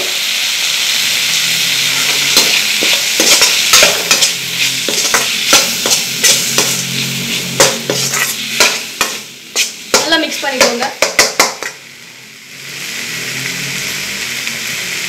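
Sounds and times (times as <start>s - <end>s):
food sizzling in hot oil: 0.0s - 15.0s
metal spatula scraping a pan: 1.6s - 10.3s.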